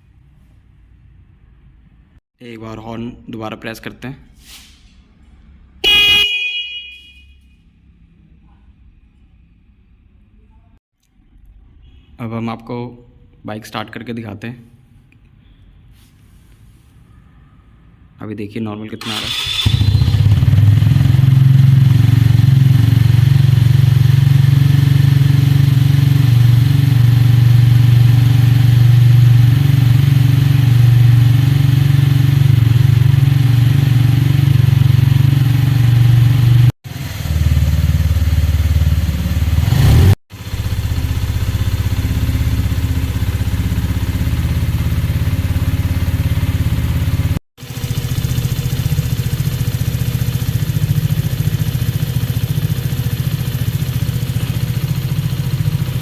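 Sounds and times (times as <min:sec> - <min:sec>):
motorcycle engine idling: 0:19.1 - 0:56.0.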